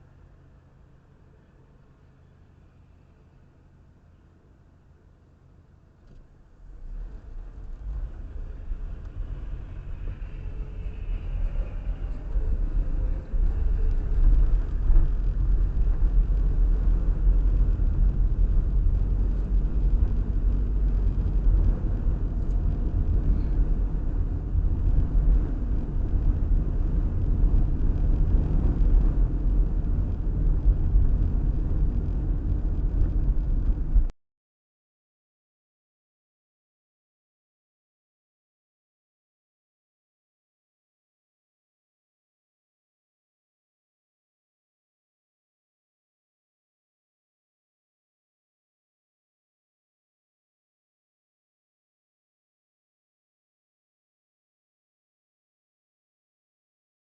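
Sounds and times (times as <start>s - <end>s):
low vehicle rumble: 0.0s - 34.2s.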